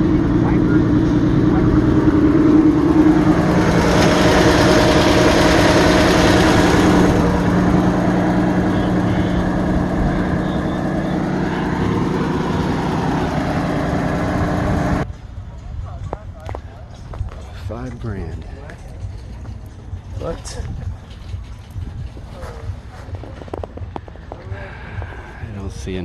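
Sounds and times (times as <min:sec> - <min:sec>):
truck engine idling: 0:00.0 - 0:15.6.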